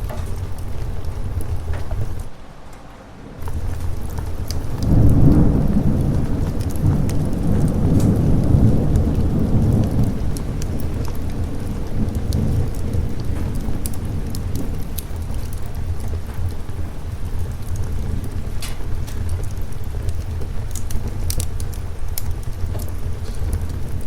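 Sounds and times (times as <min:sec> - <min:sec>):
rolling thunder: 0:00.0 - 0:02.4, 0:03.3 - 0:24.0
steady rain: 0:00.0 - 0:24.0.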